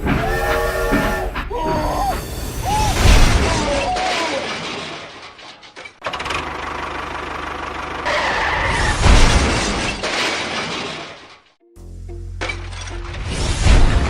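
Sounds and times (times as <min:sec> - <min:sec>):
engine running: 0:06.0 - 0:08.5.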